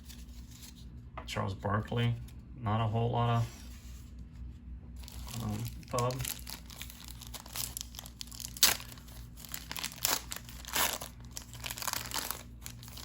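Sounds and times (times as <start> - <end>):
wrapper crinkling and rustling: 5.0 - 13.0.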